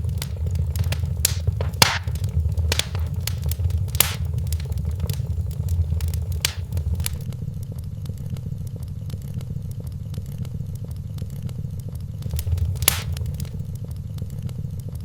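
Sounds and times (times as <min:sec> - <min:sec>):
steady low rumble: 0:00.0 - 0:07.2, 0:12.3 - 0:13.6
wood fire crackling: 0:00.0 - 0:07.3, 0:12.2 - 0:13.6.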